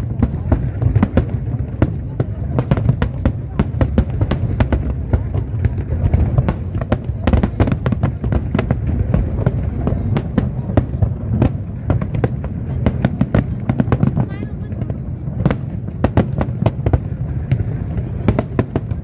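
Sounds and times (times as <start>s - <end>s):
fireworks sharp bangs: 0.0s - 19.0s.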